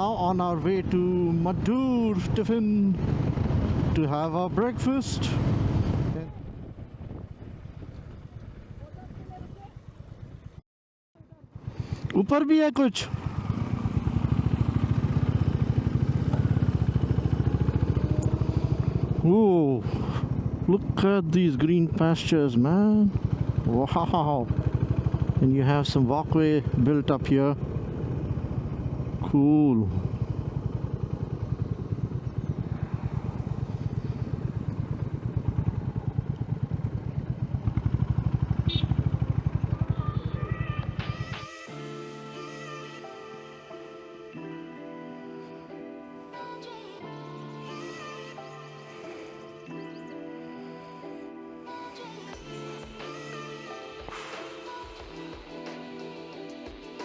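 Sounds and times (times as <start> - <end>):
motorcycle engine cruising: 0.0 - 10.6, 11.2 - 41.7
background music: 39.9 - 57.0.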